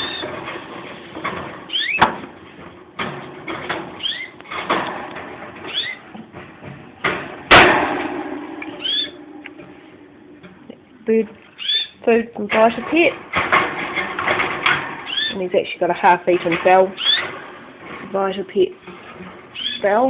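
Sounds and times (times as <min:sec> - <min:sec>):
loud clatter: 0:00.0 - 0:10.5, 0:12.5 - 0:18.1
bird chirping: 0:01.7 - 0:02.0, 0:04.0 - 0:04.4, 0:05.6 - 0:06.1, 0:08.6 - 0:09.3, 0:11.6 - 0:12.0, 0:15.1 - 0:15.4, 0:17.0 - 0:17.4, 0:19.5 - 0:19.9.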